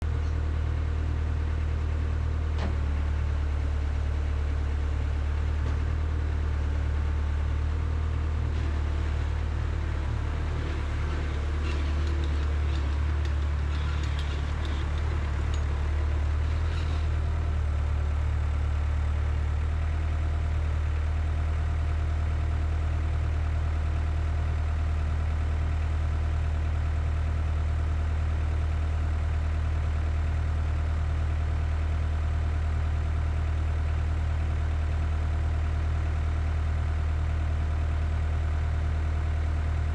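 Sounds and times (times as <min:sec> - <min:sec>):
diesel engine idling: 0:00.0 - 0:39.9
light clicks and rattles: 0:10.5 - 0:17.1.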